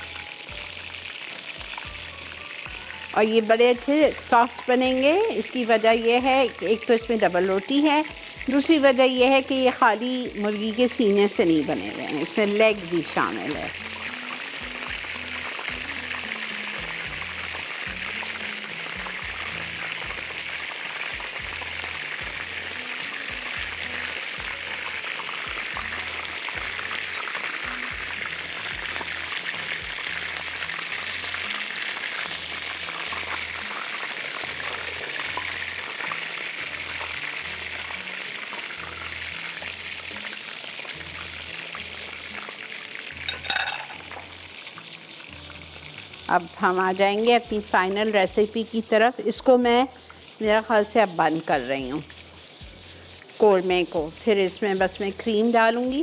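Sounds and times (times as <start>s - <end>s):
food sizzling in hot oil: 0.0s - 56.0s
background music with low beat: 51.6s - 55.2s.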